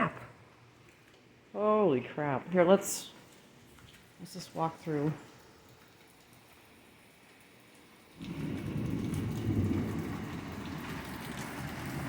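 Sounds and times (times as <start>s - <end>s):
torrential rain: 0.0s - 12.0s
low rumble of thunder: 8.2s - 12.0s.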